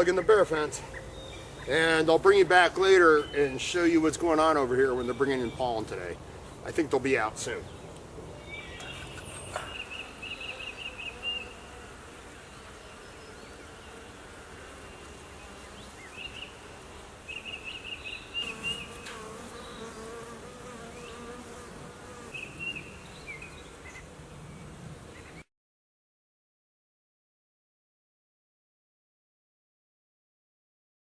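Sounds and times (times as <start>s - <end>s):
honeybees buzzing: 8.8s - 24.2s.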